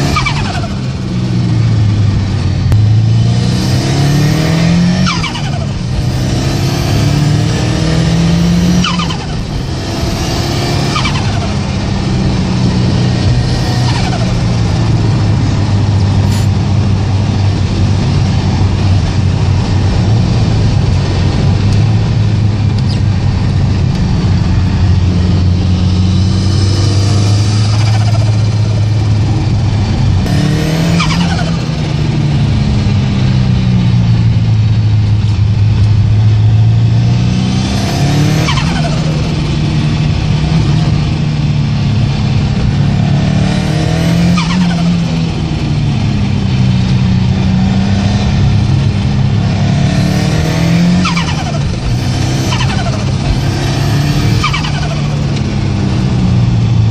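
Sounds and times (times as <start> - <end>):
car engine running hard: 0.0 - 56.9
turbo whistle and flutter: 51.0 - 55.2.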